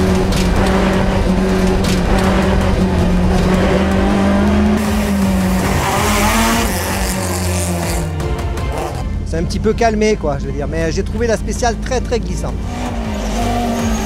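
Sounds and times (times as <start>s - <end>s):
car engine at high revs: 0.0s - 9.2s, 12.5s - 14.0s.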